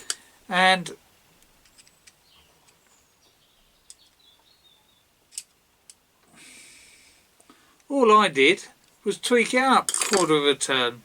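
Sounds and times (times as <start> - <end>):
faint bird chirps: 1.6 - 5.2.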